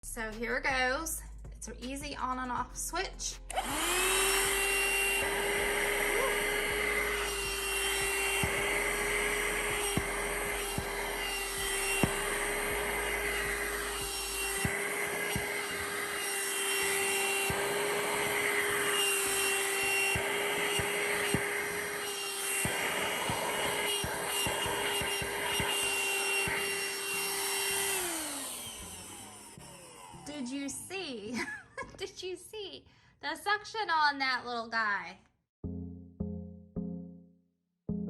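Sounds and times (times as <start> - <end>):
vacuum nozzle rubbing: 3.5 - 30.4
handheld vacuum motor whine: 3.5 - 30.8.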